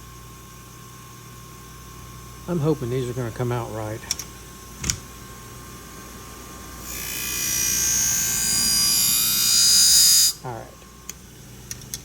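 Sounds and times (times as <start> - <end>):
blade grinding on sharpening wheel: 6.8 - 10.4.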